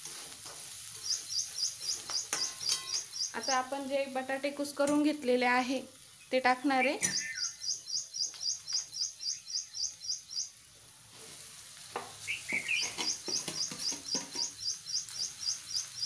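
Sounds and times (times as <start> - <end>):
bird chirping: 1.0 - 3.8, 6.2 - 10.8, 12.2 - 16.0
potatoes knocking into steel pan: 12.0 - 14.7.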